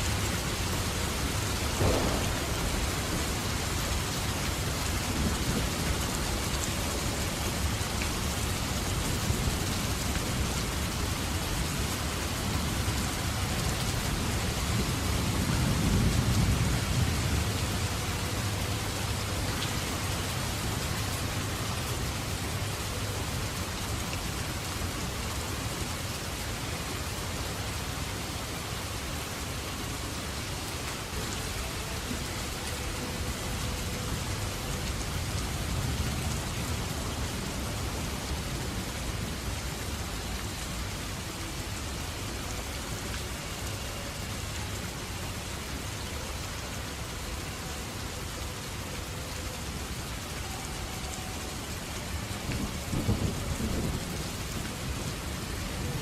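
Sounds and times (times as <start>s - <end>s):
rain pouring: 0.0s - 56.0s
thunder rumbling: 0.5s - 7.6s.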